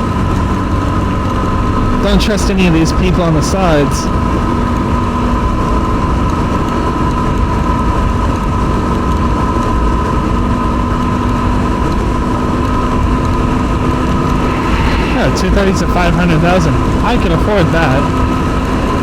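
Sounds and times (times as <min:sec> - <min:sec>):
road noise: 0:10.5 - 0:19.0
wind rumble: 0:12.9 - 0:18.8.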